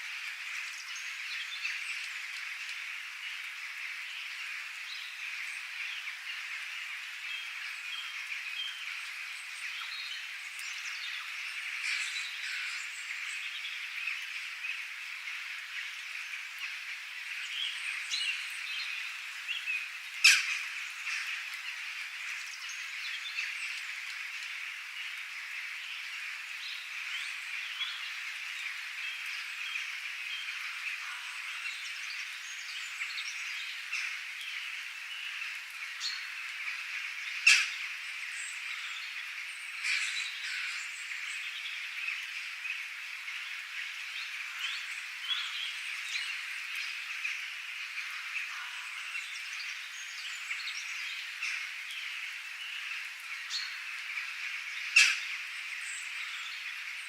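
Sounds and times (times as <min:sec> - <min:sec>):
frogs croaking: 0:00.0 - 0:57.0
bird calls: 0:00.3 - 0:57.0.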